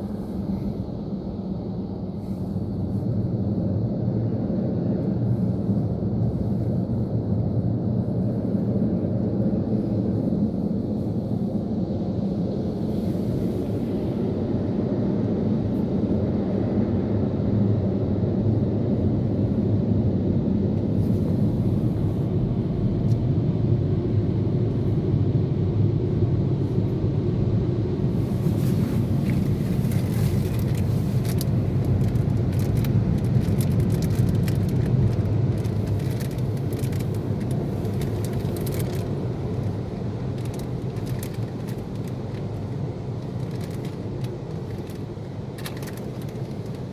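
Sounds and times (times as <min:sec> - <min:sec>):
car wash machinery rumbling: 0:28.0 - 0:46.9
rapid irregular ticks and taps: 0:29.3 - 0:42.6, 0:43.2 - 0:46.9.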